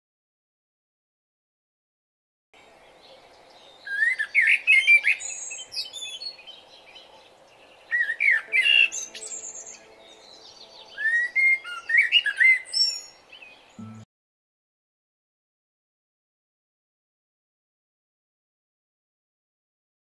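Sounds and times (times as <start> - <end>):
bird whistling and chirping: 3.5 - 7.1, 7.9 - 14.0.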